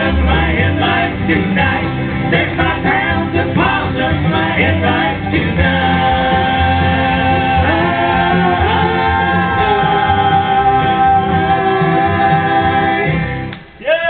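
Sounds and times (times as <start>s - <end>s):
vocal group singing harmony: 0.0s - 13.5s
guitar: 0.0s - 13.8s.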